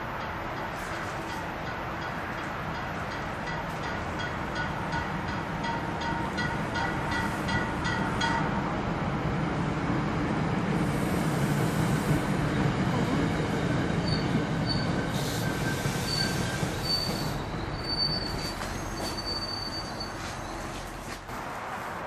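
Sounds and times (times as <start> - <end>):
train rumbling on track: 0.0 - 22.0
high-pitched wheel squeals: 14.0 - 20.8.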